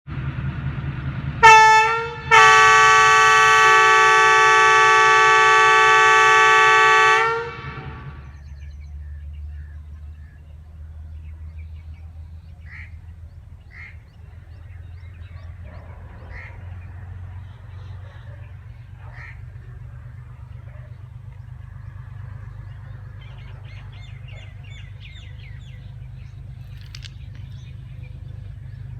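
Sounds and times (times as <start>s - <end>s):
diesel engine idling: 0.1s - 28.9s
locomotive air horn: 1.4s - 8.3s.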